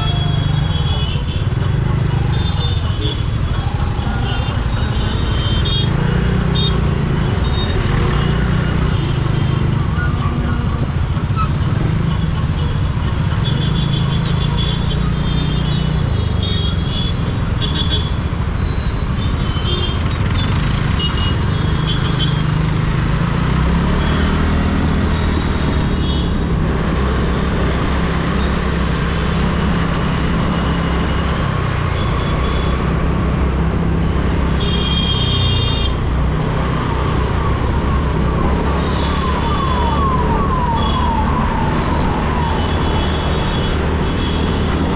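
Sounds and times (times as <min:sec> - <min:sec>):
vehicle horns honking: 0:00.0 - 0:12.4, 0:34.6 - 0:36.2
road noise: 0:00.0 - 0:44.9
siren sweeping in pitch: 0:37.0 - 0:43.8.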